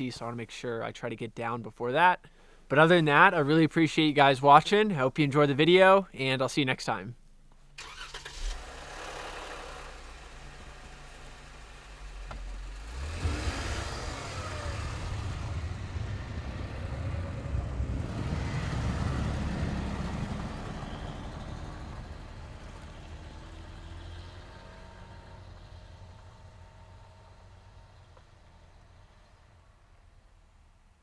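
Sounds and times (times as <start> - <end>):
vehicle engine and tyre rumble: 7.4 - 31.0.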